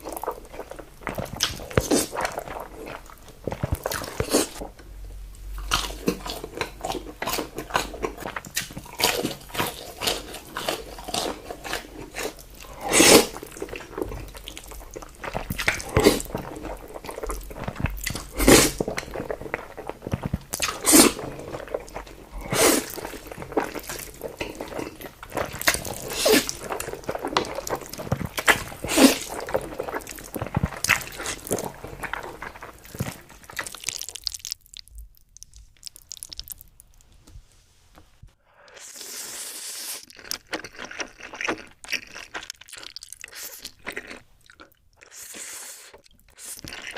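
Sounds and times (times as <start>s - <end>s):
crunching bite: 5.7s - 37.0s
wet mouth clicks while chewing: 32.8s - 37.2s.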